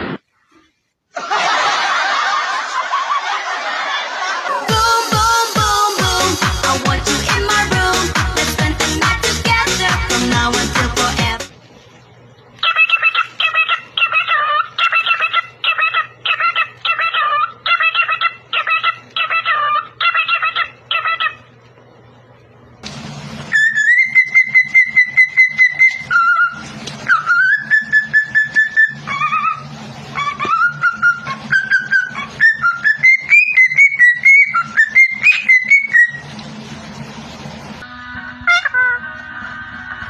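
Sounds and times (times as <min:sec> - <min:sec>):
parrot whistling: 0:12.6 - 0:21.4, 0:23.5 - 0:36.3.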